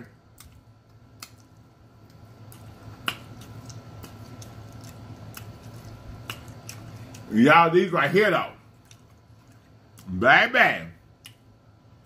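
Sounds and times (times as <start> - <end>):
faint low hum: 0.0 - 12.0
lip smacking and chewing: 0.3 - 7.3, 8.7 - 10.1, 11.2 - 11.5.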